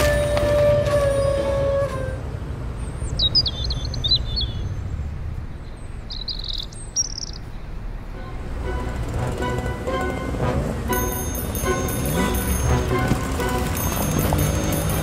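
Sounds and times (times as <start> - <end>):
small birds chirping: 2.8 - 7.9.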